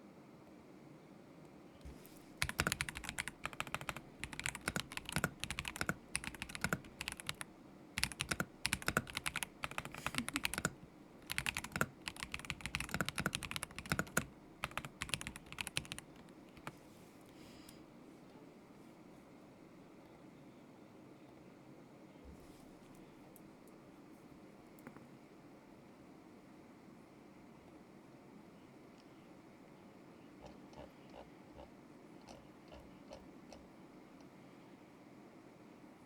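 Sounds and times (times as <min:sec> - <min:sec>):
mechanical keyboard typing: 0:02.4 - 0:16.8.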